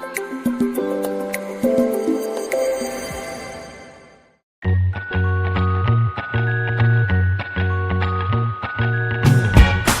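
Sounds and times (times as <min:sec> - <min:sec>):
instrumental music with steady beat: 0:04.6 - 0:10.0.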